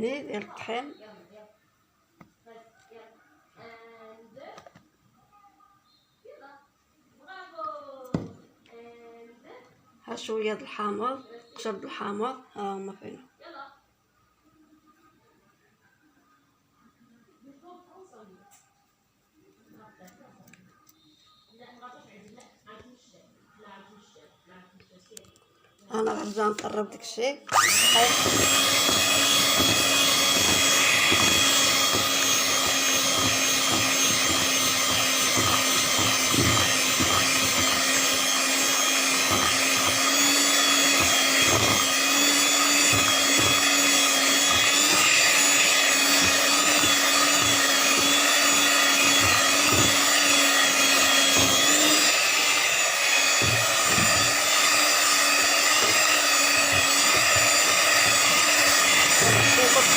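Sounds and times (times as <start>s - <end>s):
electric mixer running: 27.5s - 59.9s.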